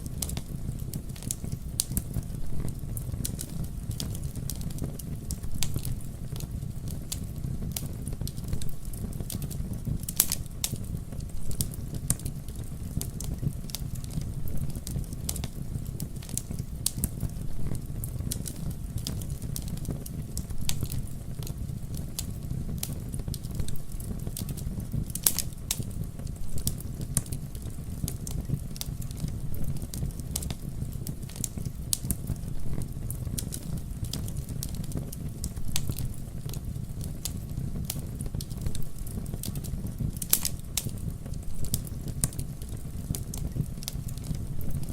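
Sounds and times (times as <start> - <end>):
campfire flames rumbling: 0.0 - 44.9
wood crackling and popping: 0.0 - 44.9.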